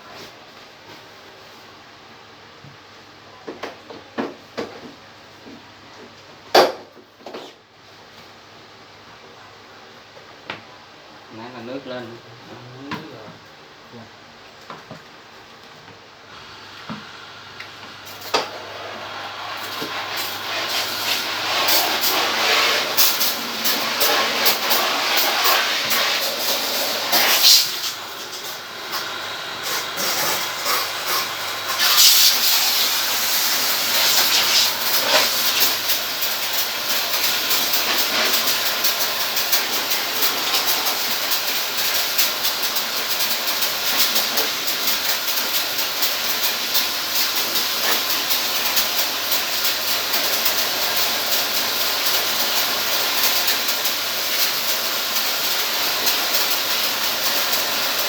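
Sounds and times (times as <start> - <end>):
water jet spraying: 16.4 - 58.0.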